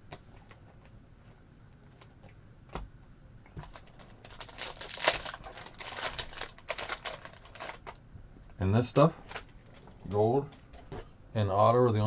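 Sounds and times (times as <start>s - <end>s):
foil wrapper crinkling and tearing: 3.6s - 8.0s.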